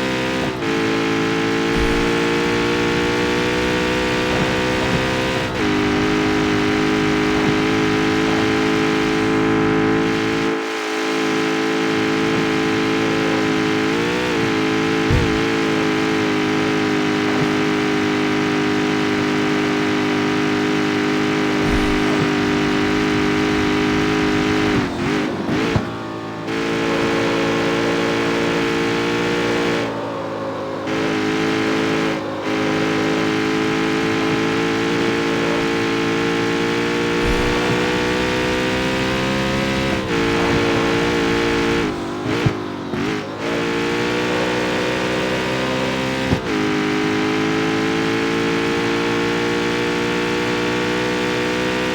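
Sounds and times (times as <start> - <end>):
car engine running under load: 0.0 - 51.9
exhaust crack: 0.4 - 10.5, 11.9 - 18.1, 19.6 - 28.8, 31.0 - 45.5.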